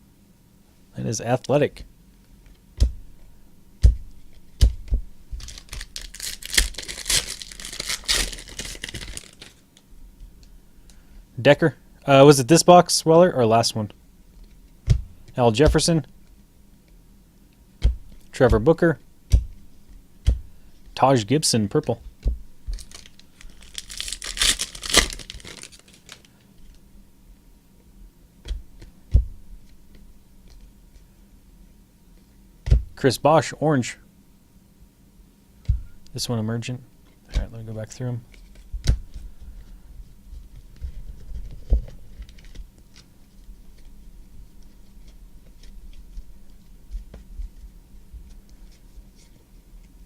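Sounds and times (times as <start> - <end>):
wrapper tearing and crinkling: 5.4 - 9.7, 22.7 - 26.4.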